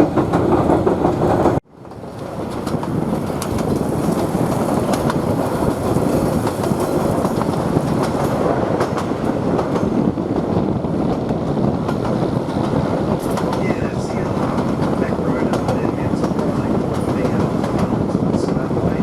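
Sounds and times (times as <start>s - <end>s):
wheels clicking over rail joints: 0.0s - 10.0s
train wheels rumbling on rails: 0.0s - 19.0s.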